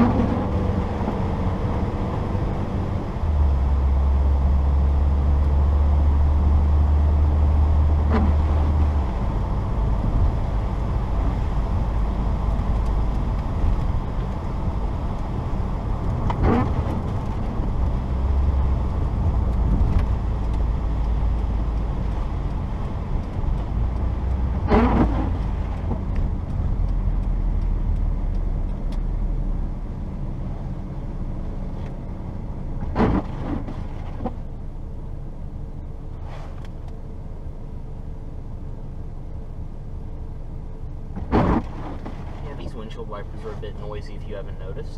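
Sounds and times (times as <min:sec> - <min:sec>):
car engine and tyres rumbling: 0:00.0 - 0:44.9
windshield wipers sweeping: 0:07.2 - 0:29.2, 0:32.8 - 0:34.5, 0:41.1 - 0:44.9.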